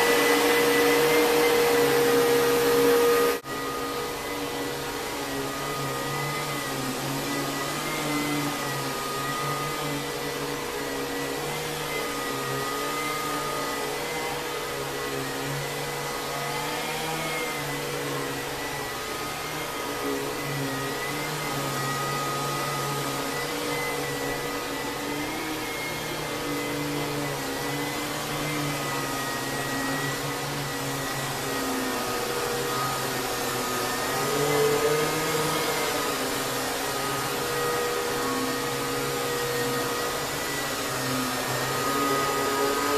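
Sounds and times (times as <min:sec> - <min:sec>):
vacuum cleaner running: 0:00.0 - 0:42.9.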